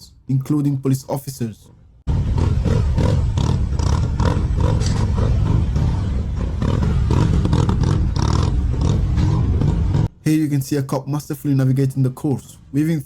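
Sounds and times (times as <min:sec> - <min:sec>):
motorcycle engine revving: 0:02.1 - 0:10.2.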